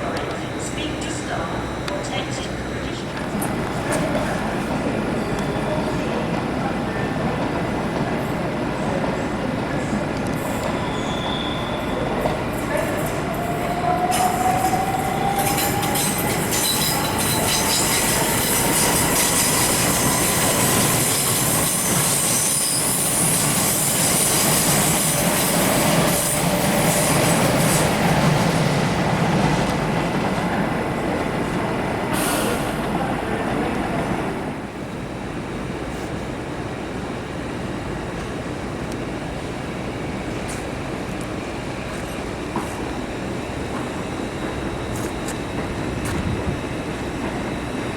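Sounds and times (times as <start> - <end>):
train wheels squealing on rails: 4.8 - 7.4, 9.1 - 28.4.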